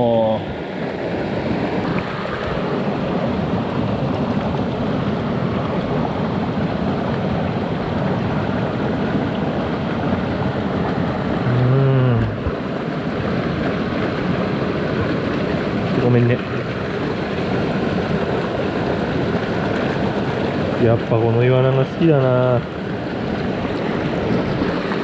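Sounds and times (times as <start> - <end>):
stream rushing over rocks: 0.0 - 25.0
person humming: 11.4 - 12.5.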